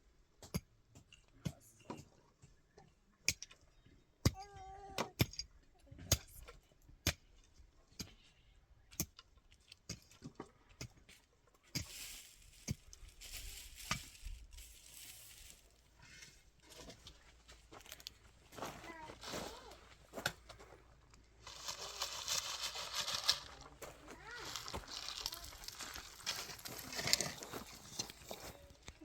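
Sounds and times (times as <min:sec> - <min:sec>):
scraping or rustling: 0:21.4 - 0:28.7.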